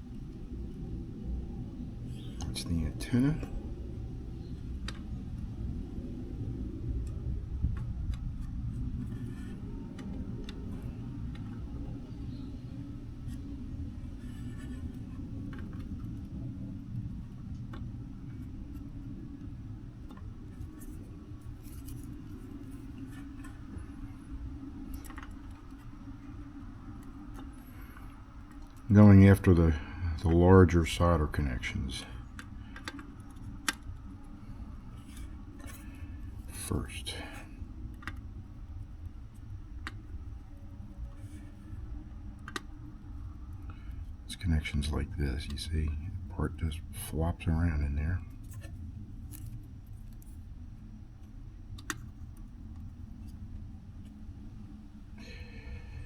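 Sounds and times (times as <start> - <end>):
steady low hum: 0.0 - 56.0
steady low rumble: 0.0 - 56.0.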